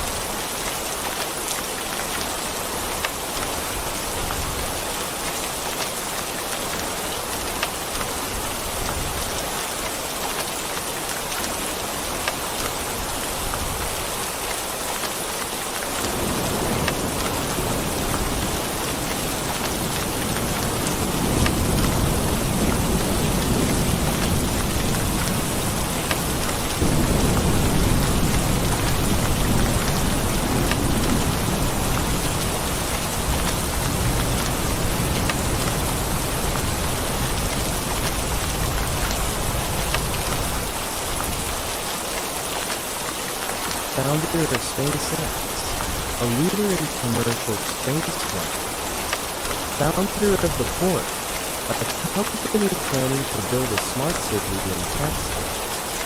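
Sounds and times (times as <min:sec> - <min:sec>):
rain hissing: 0:00.0 - 0:56.0
thunder rumbling: 0:16.1 - 0:40.6.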